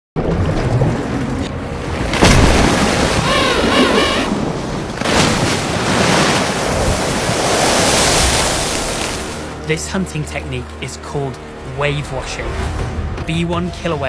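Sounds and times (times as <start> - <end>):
sea water surging and splashing: 0.2 - 9.6
wavering warbling call: 3.2 - 4.6.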